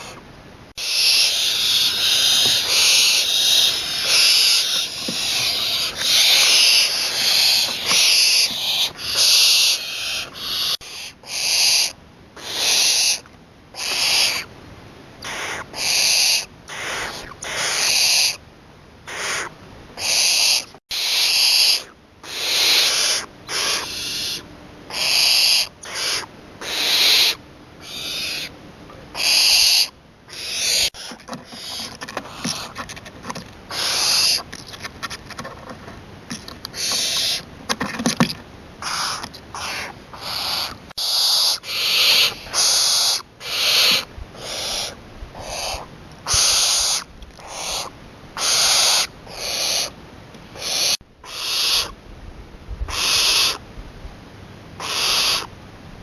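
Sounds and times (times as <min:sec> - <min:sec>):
owl hissing screech calls: 0:00.0 - 0:00.2, 0:00.8 - 0:14.5, 0:15.2 - 0:18.4, 0:19.1 - 0:28.5, 0:29.1 - 0:32.8, 0:33.7 - 0:34.5, 0:36.7 - 0:37.5, 0:38.8 - 0:50.0, 0:50.6 - 0:52.0, 0:52.9 - 0:53.6, 0:54.8 - 0:55.5.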